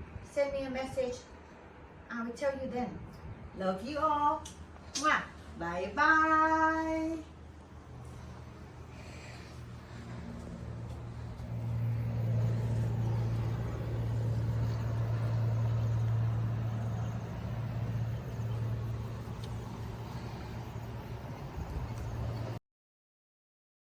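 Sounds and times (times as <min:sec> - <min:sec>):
low motor hum: 0:07.2 - 0:22.6.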